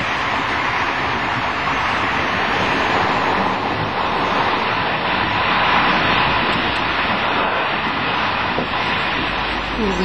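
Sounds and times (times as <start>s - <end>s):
train wheel track and wind noise: 0.0s - 10.0s.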